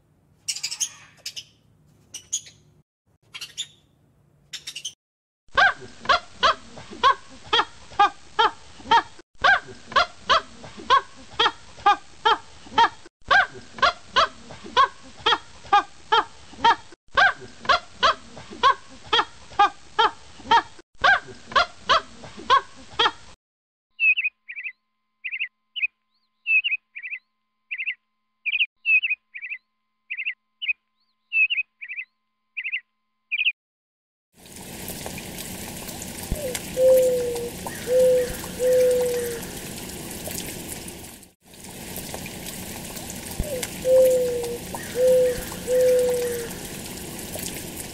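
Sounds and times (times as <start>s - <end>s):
rapid pitched animal calls: 0.5s - 1.5s
high chirping calls: 0.5s - 2.7s, 3.3s - 3.9s, 4.5s - 5.0s, 24.0s - 33.5s, 43.6s - 46.6s.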